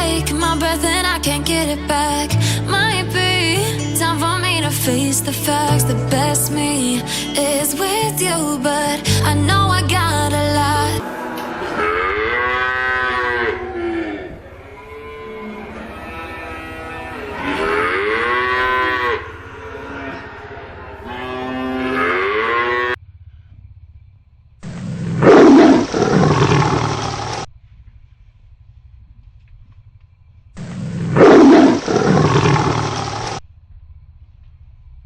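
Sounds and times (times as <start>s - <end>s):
cow mooing: 11.0s - 23.0s
loud animal roar: 11.0s - 23.0s, 24.6s - 27.5s, 30.6s - 33.4s.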